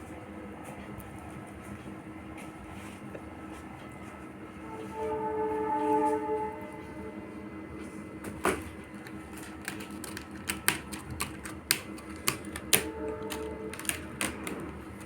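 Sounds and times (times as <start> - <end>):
steady horn-like tone: 4.5 - 8.2, 12.8 - 14.6.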